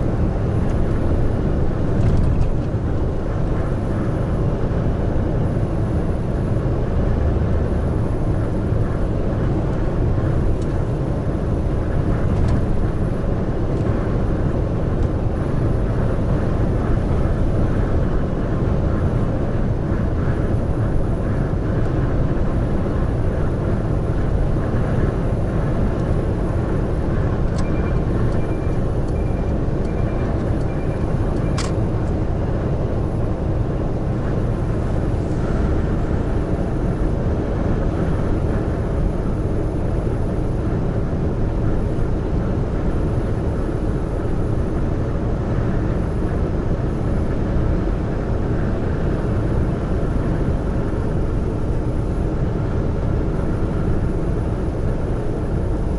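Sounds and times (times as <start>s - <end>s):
heavy truck driving: 0.0s - 55.9s
faint beeps: 27.6s - 31.7s.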